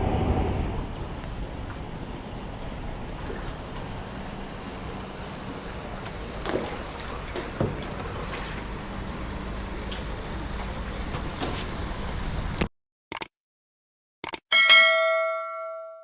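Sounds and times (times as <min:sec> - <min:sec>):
wind noise: 0:00.0 - 0:06.0
water flowing: 0:00.0 - 0:11.0.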